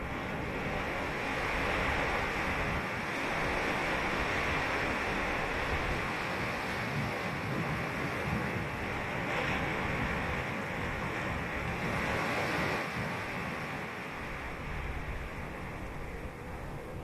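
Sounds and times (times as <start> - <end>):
low rumble of sea: 0.0 - 17.0
surf breaking on beach: 0.0 - 17.0.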